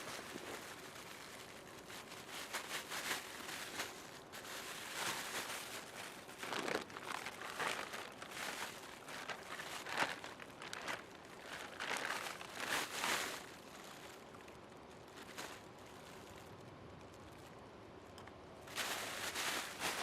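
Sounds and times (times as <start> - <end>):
faint steady hiss: 0.0 - 20.0
rustling and crinkling: 0.0 - 20.0.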